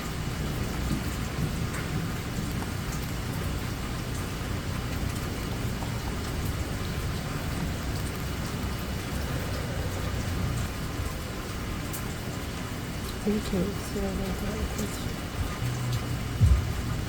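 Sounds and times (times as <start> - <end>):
steady rainfall: 0.0 - 17.0
low rumble: 15.3 - 17.0.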